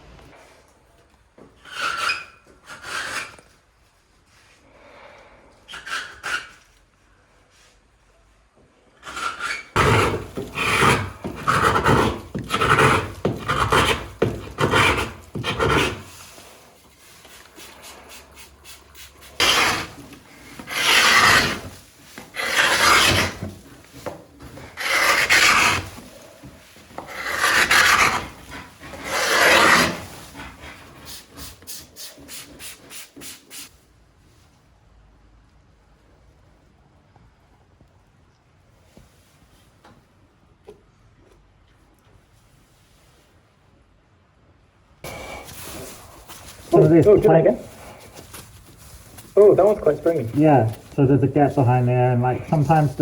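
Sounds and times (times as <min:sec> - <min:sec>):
paint scraper rasping on wood: 0:09.1 - 0:16.2, 0:17.6 - 0:20.0, 0:20.6 - 0:21.7, 0:22.3 - 0:23.5, 0:24.8 - 0:26.0, 0:27.0 - 0:28.4, 0:29.0 - 0:30.1.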